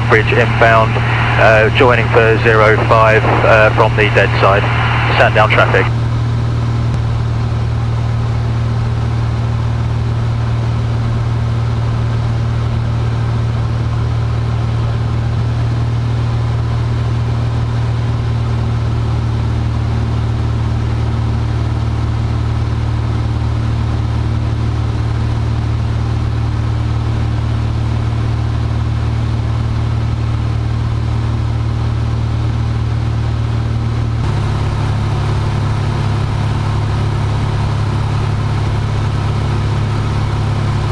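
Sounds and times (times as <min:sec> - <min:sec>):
airplane engine and propeller droning: 0:00.0 - 0:40.9.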